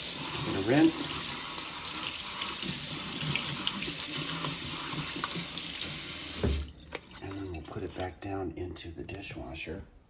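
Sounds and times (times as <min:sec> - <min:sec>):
tap water splashing into sink: 0:02.0 - 0:08.0.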